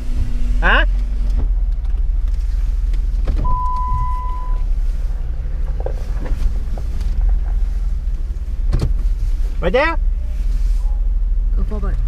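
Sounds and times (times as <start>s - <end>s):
vehicle engine running low: 0.0s - 12.0s
electronic beep: 3.5s - 4.6s.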